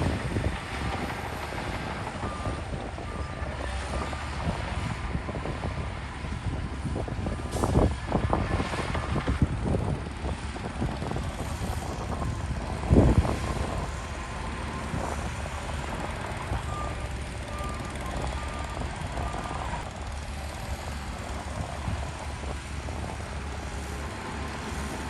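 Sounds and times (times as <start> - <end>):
heavy machinery diesel engines: 0.0 - 25.0
reversing alarm beeping: 13.5 - 20.2.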